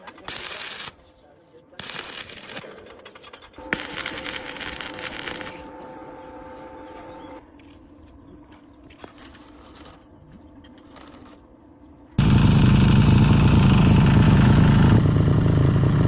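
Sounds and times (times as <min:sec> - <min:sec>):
faint clicks and scrapes: 0:07.6 - 0:11.4
engine-like rumble: 0:12.2 - 0:16.0.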